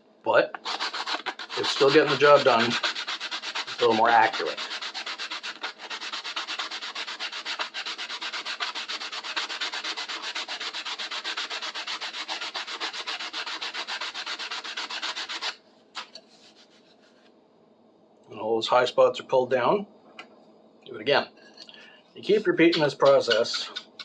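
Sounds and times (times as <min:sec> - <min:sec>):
sandpaper rubbing on wood: 0:00.6 - 0:16.9.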